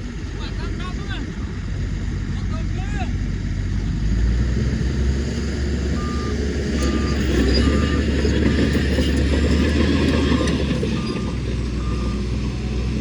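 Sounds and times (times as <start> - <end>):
heavy machinery droning: 0.0 - 13.0
reverse alarm beeping: 6.0 - 8.9.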